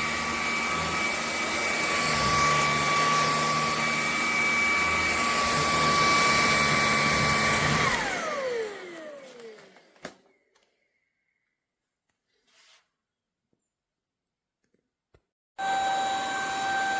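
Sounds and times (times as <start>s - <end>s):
stick vacuum whining: 0.0s - 10.8s, 15.6s - 16.9s.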